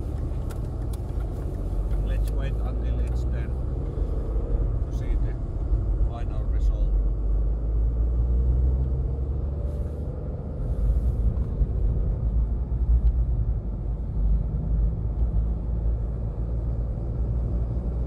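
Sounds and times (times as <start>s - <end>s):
diesel engine rumble in cabin: 0.0s - 18.0s
road noise: 0.0s - 18.0s.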